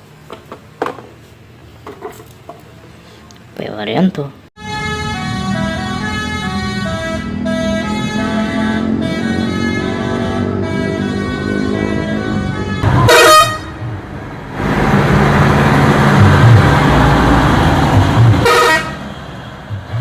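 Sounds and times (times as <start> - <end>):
vehicle horn blasts: 4.6 - 13.8, 18.4 - 19.1
rushing vehicle noise: 4.6 - 20.0.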